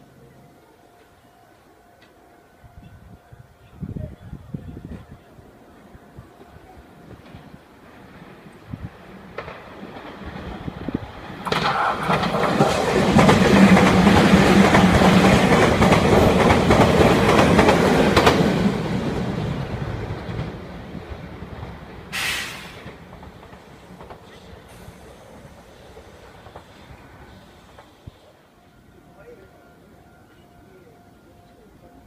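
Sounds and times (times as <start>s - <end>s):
train wheels clattering over rail joints: 9.3s - 18.7s, 21.6s - 26.9s.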